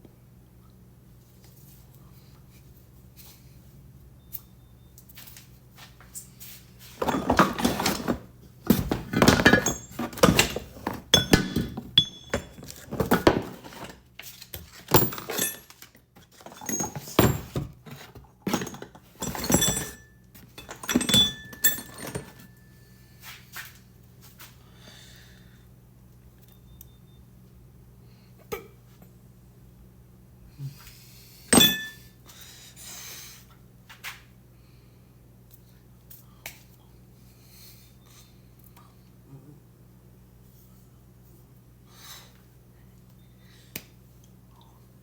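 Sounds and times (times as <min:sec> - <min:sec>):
metal clanks and clinks: 0:07.0 - 0:14.0, 0:14.9 - 0:17.8, 0:18.4 - 0:22.7, 0:31.5 - 0:32.1
metallic ringing: 0:11.1 - 0:12.7, 0:19.2 - 0:22.8, 0:31.6 - 0:32.1.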